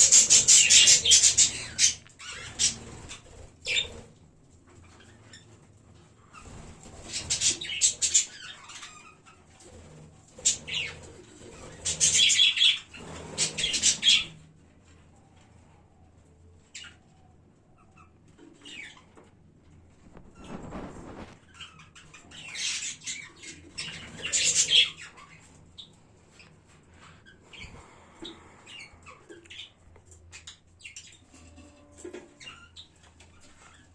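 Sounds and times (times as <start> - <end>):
budgerigars chirping: 0.0 - 4.0, 21.5 - 25.9
wing flapping: 20.0 - 21.4.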